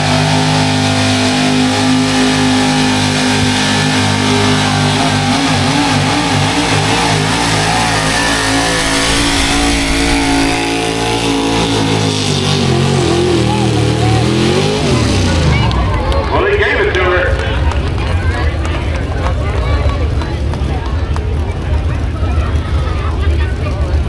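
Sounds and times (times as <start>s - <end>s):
truck engine at high revs: 0.0s - 16.3s.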